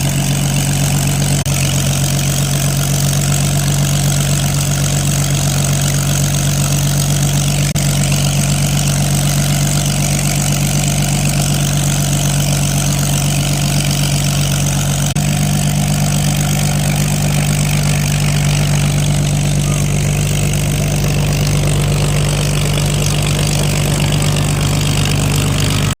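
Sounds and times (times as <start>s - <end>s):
light aircraft engine droning: 15.1s - 26.0s.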